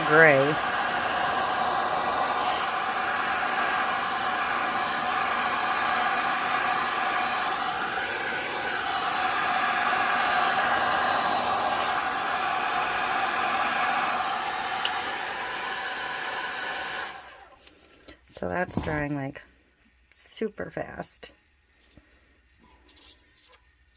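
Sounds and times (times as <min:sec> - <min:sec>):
heat gun blowing: 0:00.0 - 0:17.6.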